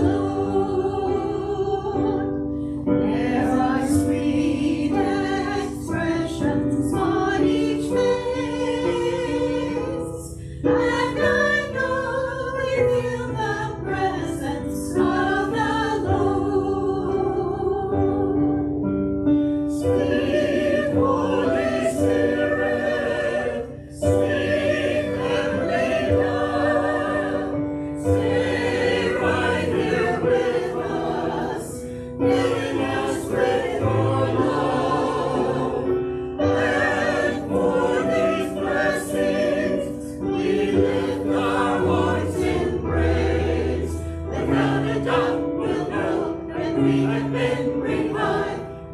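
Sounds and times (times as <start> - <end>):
choir singing a hymn: 0.0 - 48.9
singers breathing: 10.3 - 10.7, 31.8 - 32.2.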